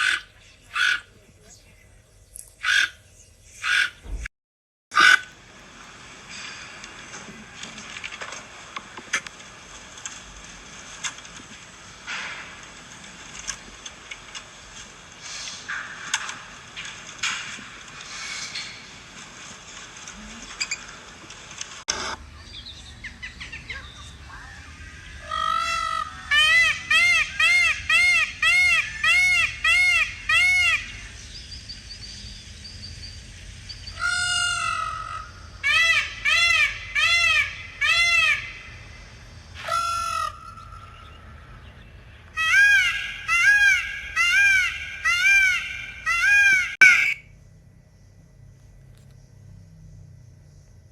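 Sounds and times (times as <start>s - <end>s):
bird calling: 0.0s - 1.8s, 2.6s - 4.2s, 22.3s - 33.0s, 33.7s - 47.3s
rustling with clicks: 6.3s - 22.2s.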